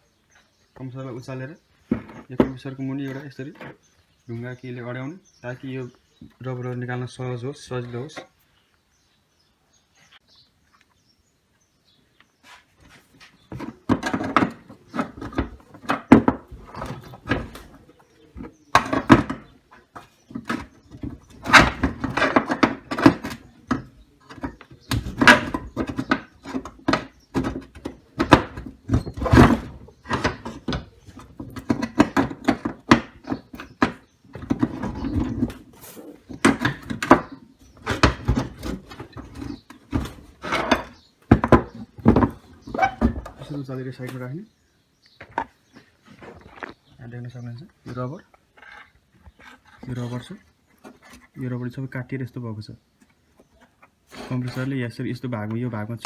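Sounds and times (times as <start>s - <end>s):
hands knocking and scraping metal: 12.4s - 44.2s.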